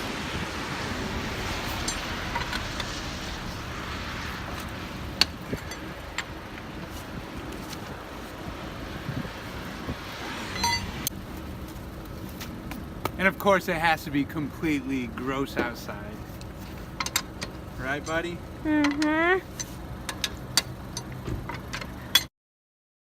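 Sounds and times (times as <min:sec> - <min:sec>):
wind rushing: 0:00.0 - 0:11.2
road traffic noise: 0:00.0 - 0:22.3
lug wrench clicking: 0:01.8 - 0:03.0, 0:04.5 - 0:07.0, 0:16.4 - 0:22.3.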